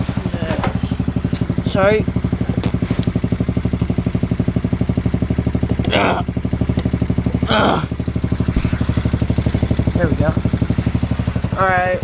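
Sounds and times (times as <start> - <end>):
motorcycle engine idling: 0.0 - 12.0
person making short vocal sounds: 5.8 - 6.3, 7.4 - 7.9.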